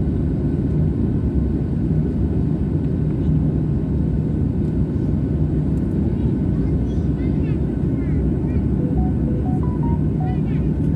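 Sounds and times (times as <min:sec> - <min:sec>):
airliner engines rumbling: 0:00.0 - 0:10.9.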